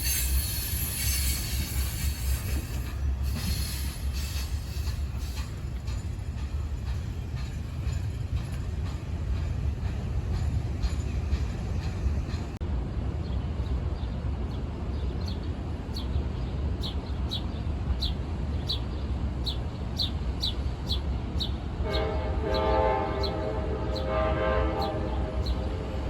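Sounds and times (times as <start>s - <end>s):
train rumbling: 0.0s - 26.0s
train horn blowing: 21.8s - 26.0s.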